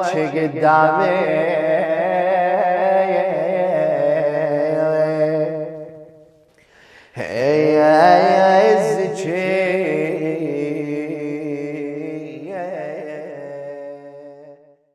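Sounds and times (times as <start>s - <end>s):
man singing long wavering note: 0.0s - 6.1s.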